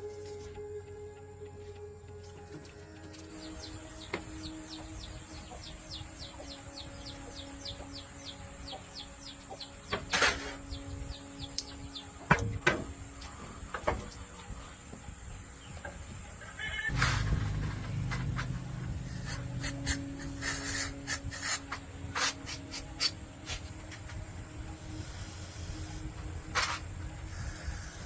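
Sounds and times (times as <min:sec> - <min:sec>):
steady hiss: 0:16.9 - 0:28.0.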